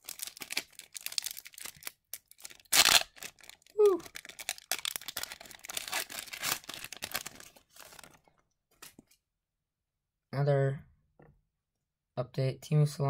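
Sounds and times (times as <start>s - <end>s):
paper and foil crinkling: 0.0s - 9.0s.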